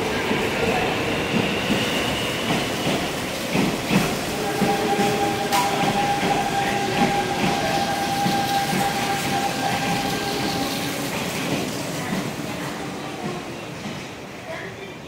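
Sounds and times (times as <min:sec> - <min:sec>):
train wheels clicking over rail joints: 0:01.2 - 0:14.2.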